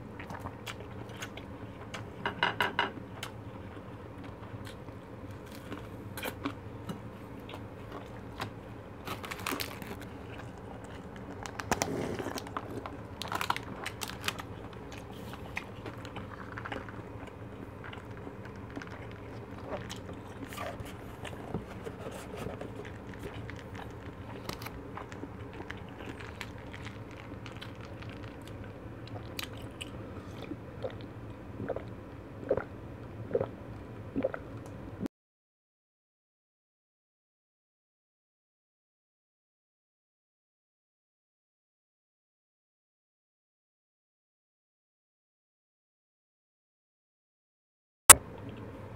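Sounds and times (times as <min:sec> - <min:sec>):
crunchy chewing of fried food: 0:00.0 - 0:02.2, 0:03.0 - 0:31.9
steady low hum: 0:00.0 - 0:35.1
gulps of juice: 0:29.1 - 0:34.6.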